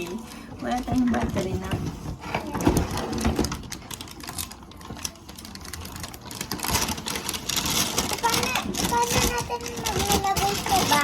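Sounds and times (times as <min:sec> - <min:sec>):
plastic toy pieces clicking: 0:02.8 - 0:11.0.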